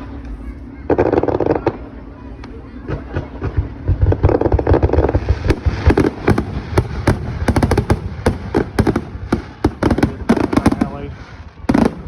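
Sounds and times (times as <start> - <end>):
fireworks bangs: 2.8 - 12.0.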